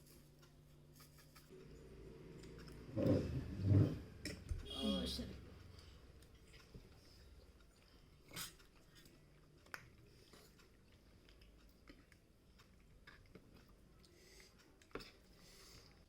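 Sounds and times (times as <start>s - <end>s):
fork scraping a plate: 2.9s - 4.4s
chewing: 5.8s - 16.0s.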